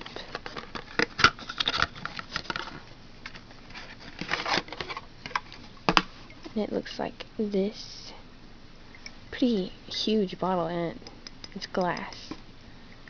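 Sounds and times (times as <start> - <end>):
cardboard box rustling: 0.1 - 5.6.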